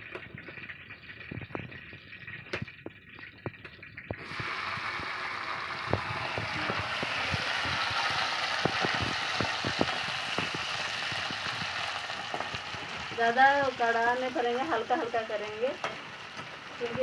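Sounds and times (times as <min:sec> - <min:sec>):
vegetables sizzling in hot oil: 0:04.1 - 0:17.0.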